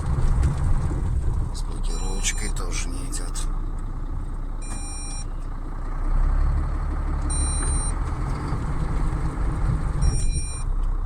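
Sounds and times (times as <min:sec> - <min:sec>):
diesel truck engine revving: 0:00.0 - 0:11.0
short warning beep: 0:01.9 - 0:02.6, 0:04.6 - 0:05.3, 0:07.3 - 0:08.0, 0:10.0 - 0:10.7.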